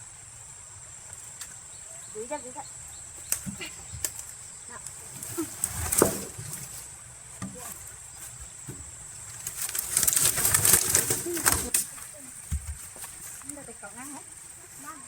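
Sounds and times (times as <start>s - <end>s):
log scraping: 3.2s - 14.0s.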